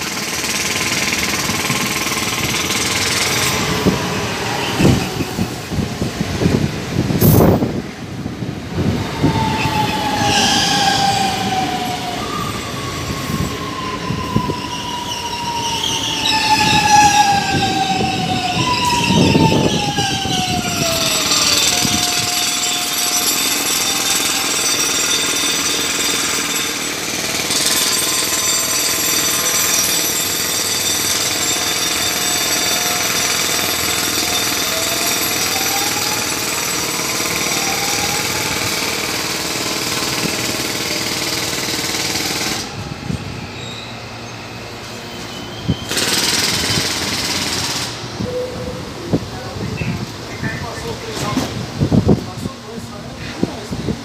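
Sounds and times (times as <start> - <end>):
train wheels clattering on rails: 0.0 - 6.1, 20.3 - 42.8, 45.2 - 48.2
train humming: 0.0 - 51.8.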